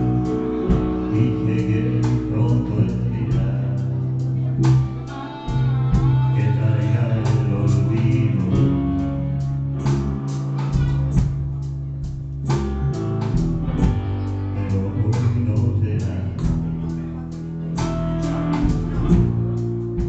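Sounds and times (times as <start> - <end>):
plucked guitar: 0.0 - 20.0
sustained bass notes: 0.0 - 20.0
drum beat: 4.7 - 6.4, 10.0 - 14.2.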